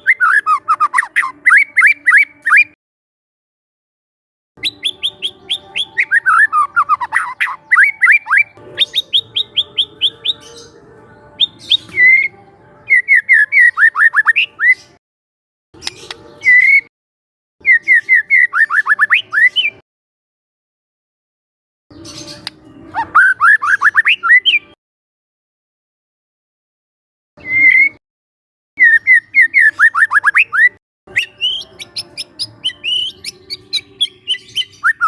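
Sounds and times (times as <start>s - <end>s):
songbird singing whistles: 0.0s - 2.8s, 4.6s - 10.7s, 11.4s - 15.0s, 15.8s - 16.9s, 17.6s - 19.8s, 21.9s - 24.7s, 27.4s - 28.0s, 28.8s - 35.0s.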